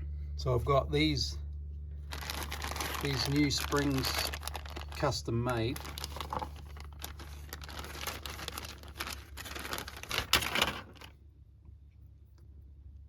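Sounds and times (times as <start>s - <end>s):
packaging crinkling and rustling: 2.0s - 11.1s.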